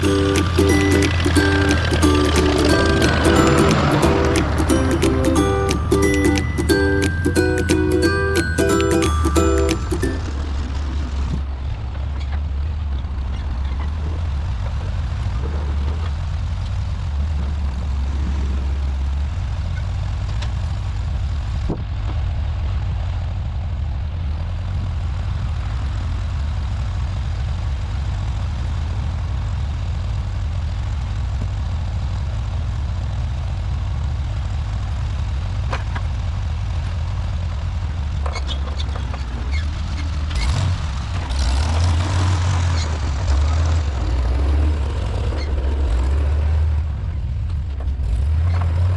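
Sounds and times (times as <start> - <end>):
tractor engine humming: 0.0 - 11.2.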